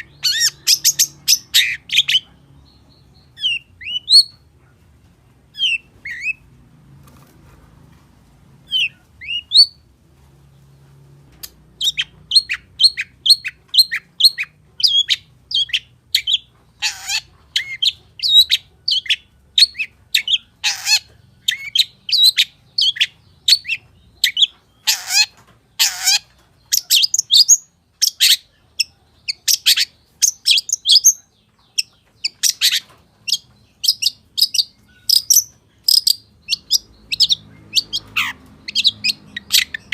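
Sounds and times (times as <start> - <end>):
bird high calls: 11.8 - 39.9.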